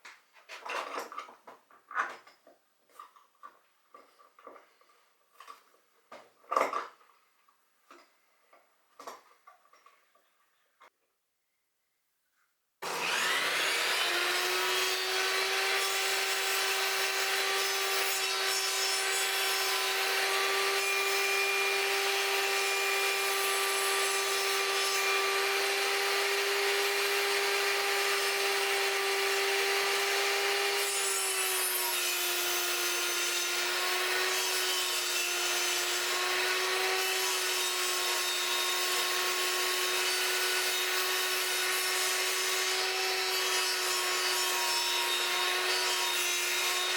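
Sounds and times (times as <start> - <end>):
electric woodworking tool running: 12.8 - 46.9.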